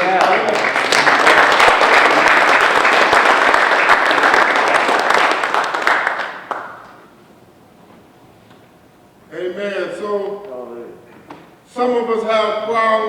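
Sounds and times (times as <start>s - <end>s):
audience applauding: 0.0s - 7.0s.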